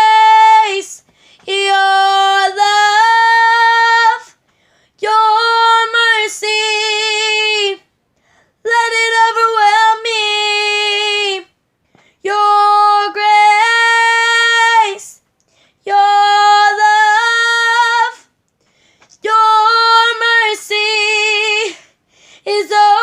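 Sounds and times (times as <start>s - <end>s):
woman singing unaccompanied: 0.0s - 4.4s, 5.0s - 7.8s, 8.6s - 11.5s, 12.2s - 15.2s, 15.8s - 18.3s, 19.2s - 21.8s, 22.5s - 23.0s
breaths: 1.0s - 1.5s, 4.2s - 5.0s, 8.1s - 8.7s, 11.8s - 12.3s, 15.4s - 15.9s, 18.5s - 19.2s, 21.7s - 22.5s.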